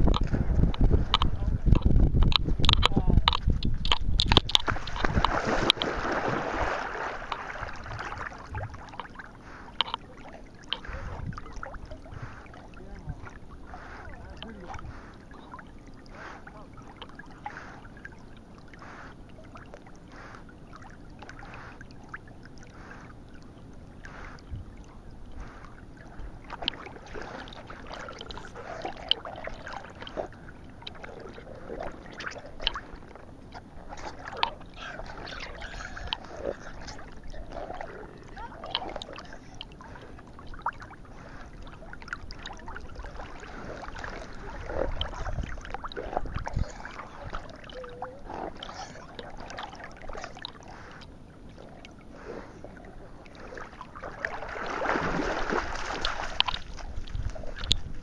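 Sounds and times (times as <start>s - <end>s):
sharp splashes and knocks: 0.0s - 9.2s, 53.7s - 58.0s
rush of water: 0.0s - 22.7s, 53.3s - 58.0s
water splashing and sloshing: 0.0s - 58.0s.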